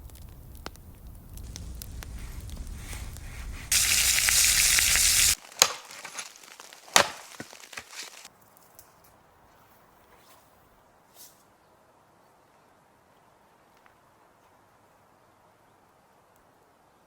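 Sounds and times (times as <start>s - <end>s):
campfire sizzling hiss: 0.0s - 8.3s
fire crackling and snapping: 0.0s - 8.3s.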